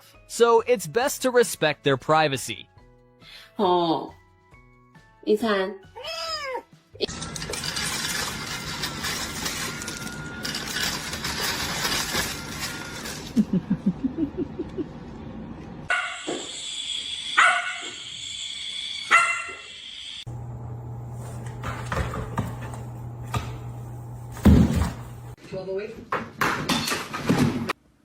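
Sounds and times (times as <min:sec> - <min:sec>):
dog yipping: 0:06.0 - 0:06.6, 0:17.4 - 0:18.0, 0:19.1 - 0:19.6
dog barking: 0:15.9 - 0:16.3, 0:17.4 - 0:18.0, 0:19.1 - 0:19.7.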